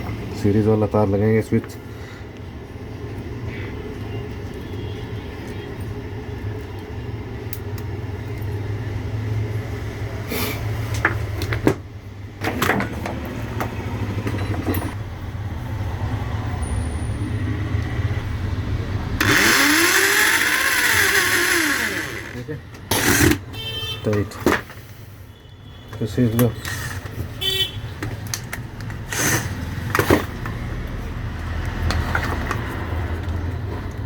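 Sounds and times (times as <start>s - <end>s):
angle grinder spinning up: 19.2s - 23.4s, 29.1s - 29.6s.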